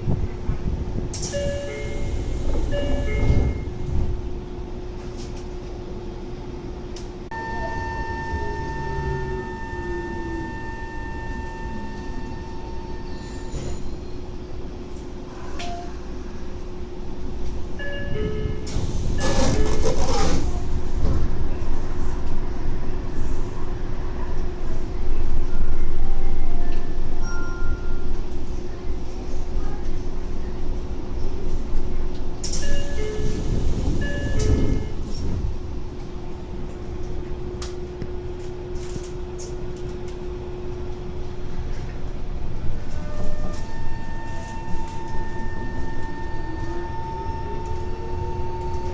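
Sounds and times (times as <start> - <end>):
subway train electrical hum: 0.0 - 48.9
train doors hiss: 1.1 - 3.8, 18.4 - 21.3, 32.4 - 35.3
held tone: 7.3 - 13.2.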